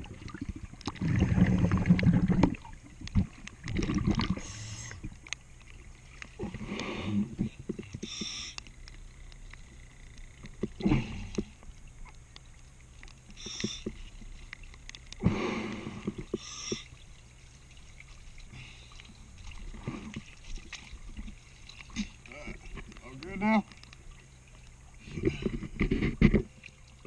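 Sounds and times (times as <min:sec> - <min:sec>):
bubbling exhales: 0:00.0 - 0:05.2, 0:15.2 - 0:16.9
hissing regulator inhales: 0:08.0 - 0:08.6.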